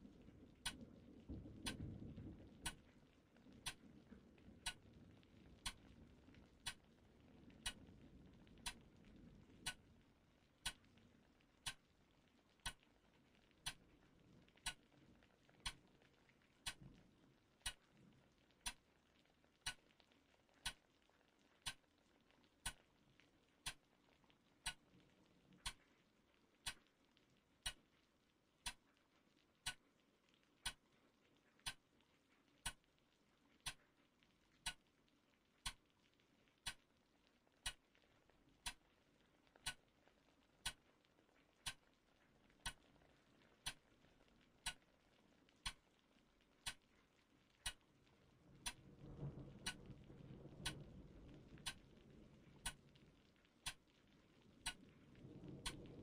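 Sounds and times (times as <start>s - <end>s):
clock ticking: 1.6s - 1.8s, 2.6s - 2.8s, 3.6s - 3.8s, 5.6s - 5.9s, 6.6s - 6.9s, 7.6s - 7.8s, 8.6s - 8.8s, 9.6s - 9.8s, 11.6s - 11.8s, 12.6s - 12.8s, 14.6s - 14.9s, 15.6s - 15.8s, 16.6s - 16.8s, 18.6s - 18.8s, 19.6s - 19.9s, 20.6s - 20.8s, 21.6s - 21.8s, 22.6s - 22.8s, 23.6s - 23.9s, 24.6s - 24.9s, 25.6s - 25.8s, 26.6s - 26.9s, 27.6s - 27.8s, 28.6s - 28.8s, 29.6s - 29.8s, 30.6s - 30.8s, 31.6s - 31.8s, 32.6s - 32.9s, 33.6s - 33.8s, 34.6s - 34.9s, 35.6s - 35.9s, 36.6s - 36.9s, 37.6s - 37.9s, 38.6s - 38.9s, 39.6s - 39.9s, 40.6s - 40.8s, 41.6s - 41.9s, 42.6s - 43.8s, 44.6s - 45.9s, 46.6s - 46.8s, 47.6s - 47.9s, 48.6s - 52.0s, 52.6s - 54.0s, 54.6s - 56.0s.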